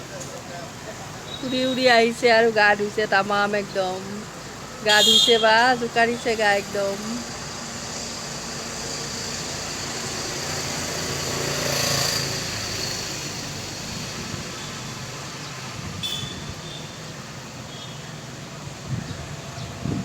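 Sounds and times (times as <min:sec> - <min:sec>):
street traffic noise: 0:00.0 - 0:20.0
vehicle passing: 0:05.8 - 0:16.0.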